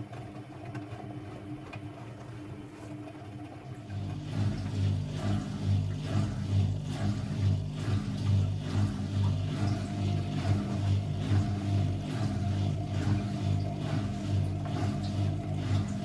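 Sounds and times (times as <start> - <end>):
washing machine motor hum: 0.0 - 16.0
washing machine drum swishing: 4.0 - 16.0.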